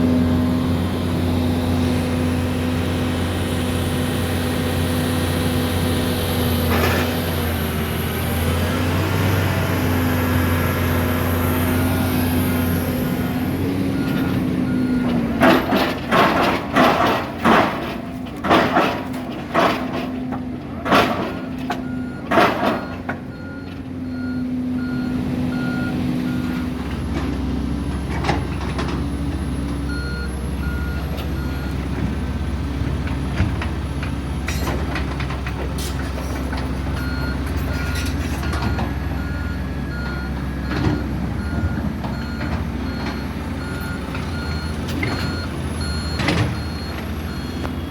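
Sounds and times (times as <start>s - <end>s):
diesel engine running: 0.0s - 47.9s
reversing alarm beeping: 11.2s - 17.1s, 21.3s - 26.8s, 29.8s - 31.9s, 37.0s - 47.9s.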